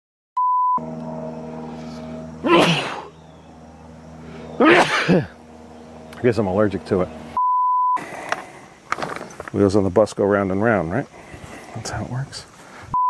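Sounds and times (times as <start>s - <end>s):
short electronic beep: 0.4s - 0.9s
steady low hum: 0.5s - 13.0s
person sneezing: 2.4s - 3.1s, 4.6s - 5.3s.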